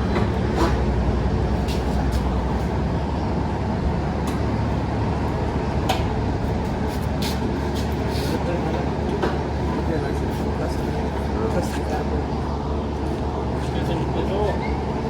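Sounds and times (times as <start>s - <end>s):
vehicle low rumble: 0.0s - 15.0s.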